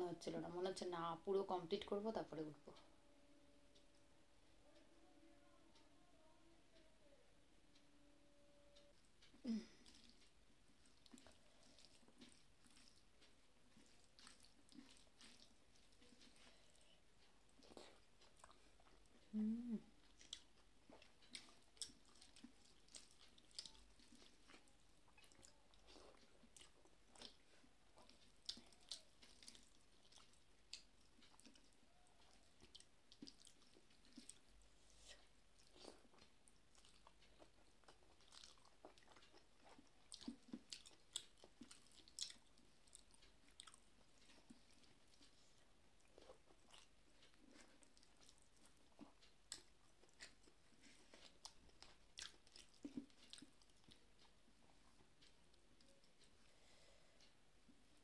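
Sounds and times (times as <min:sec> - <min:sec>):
person chewing: 0:09.2 - 0:58.0.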